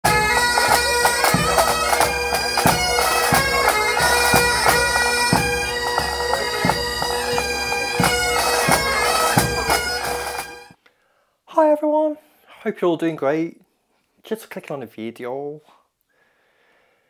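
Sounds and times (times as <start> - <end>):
bagpipe melody over drone: 0.1 - 10.8.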